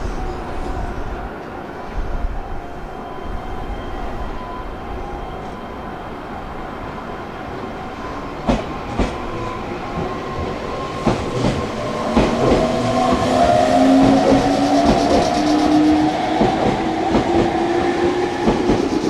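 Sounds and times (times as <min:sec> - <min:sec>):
train wheels clacking over joints: 0:08.4 - 0:19.0.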